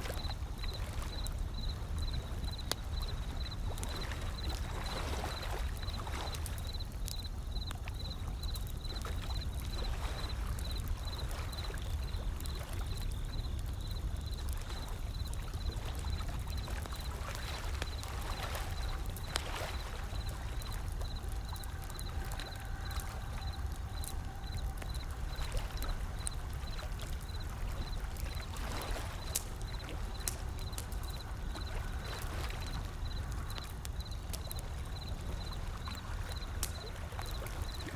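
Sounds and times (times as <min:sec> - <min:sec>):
wood fire crackling and popping: 0:00.0 - 0:37.9
ocean waves rolling in: 0:14.4 - 0:37.9.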